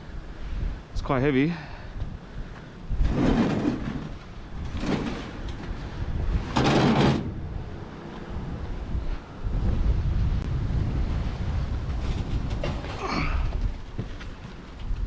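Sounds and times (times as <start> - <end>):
heavy scrap scraping and sliding: 3.0 - 7.4.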